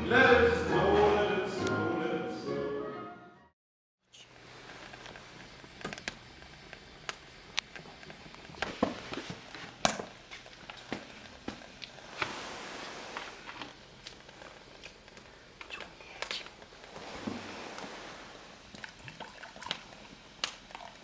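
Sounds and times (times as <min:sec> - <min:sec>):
fire crackling and popping: 0:04.3 - 0:21.0.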